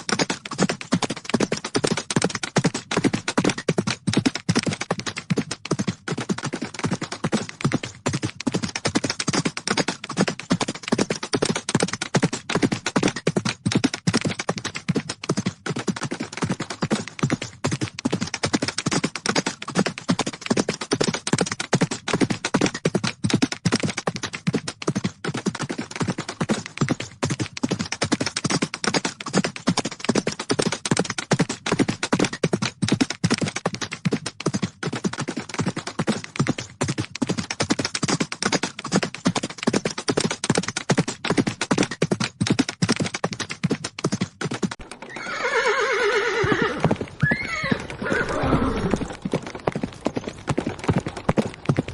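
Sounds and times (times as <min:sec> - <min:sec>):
horses galloping hoofbeats: 0:00.0 - 0:51.9
horse whinnying: 0:44.8 - 0:49.2.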